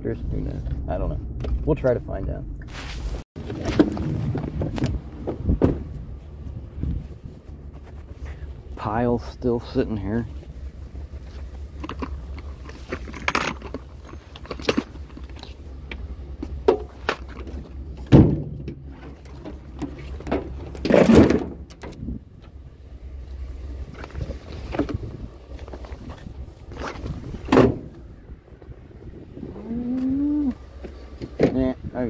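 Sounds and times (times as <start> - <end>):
vehicle engine rumbling: 0.0 - 32.0
knocks and heavy thumps: 3.4 - 6.2, 16.4 - 22.0.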